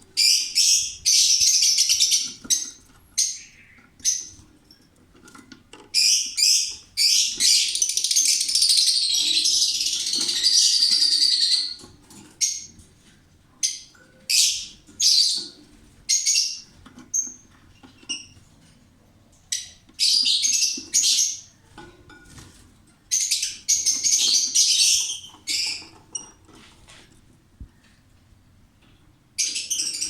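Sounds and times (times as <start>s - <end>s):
lovebirds screeching: 0.2s - 4.4s, 6.0s - 11.8s, 23.1s - 26.0s
thin bird chirps: 0.2s - 4.4s.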